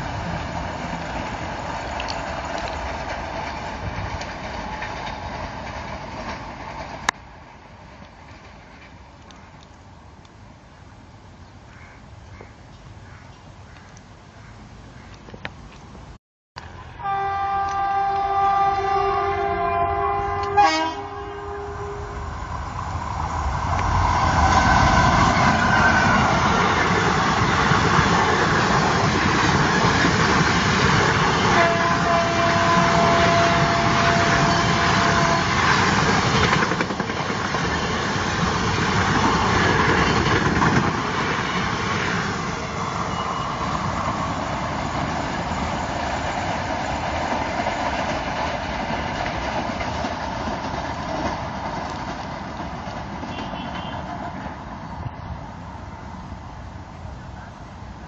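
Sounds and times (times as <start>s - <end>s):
train wheels rumbling on rails: 0.0s - 10.4s, 17.6s - 58.0s
train horn: 16.8s - 22.2s, 31.1s - 35.8s, 42.6s - 43.8s, 53.3s - 54.2s.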